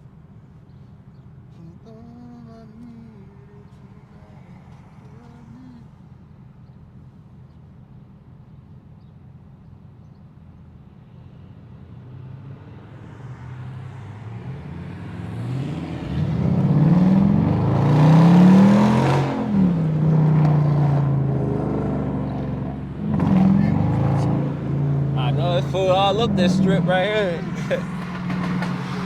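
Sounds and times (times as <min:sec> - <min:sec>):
car engine accelerating hard: 0:12.4 - 0:29.0.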